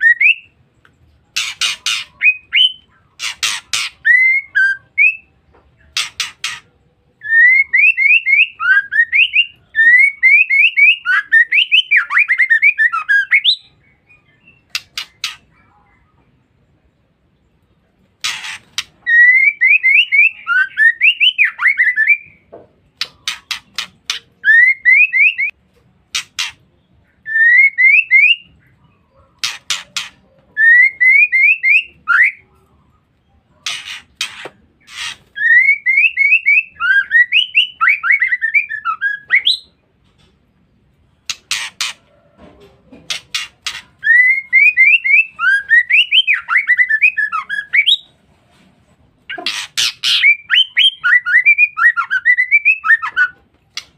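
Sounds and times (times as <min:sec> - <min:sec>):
bird whistling chattering trill: 0:49.3 - 0:53.9.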